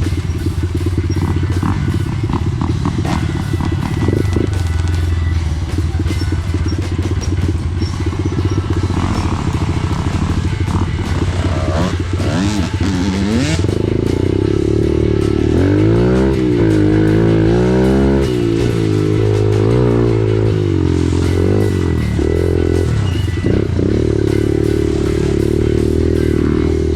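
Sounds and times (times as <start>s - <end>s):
background music: 0.0s - 26.9s
dirt bike engine revving: 0.0s - 26.9s.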